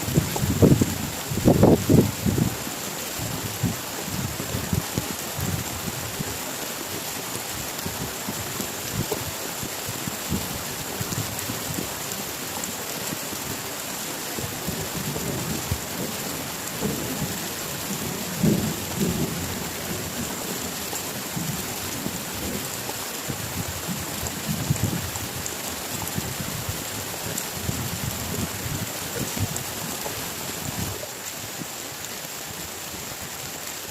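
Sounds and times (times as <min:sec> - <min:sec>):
heavy rain: 0:00.0 - 0:33.9
thunder rumbling: 0:14.7 - 0:20.8.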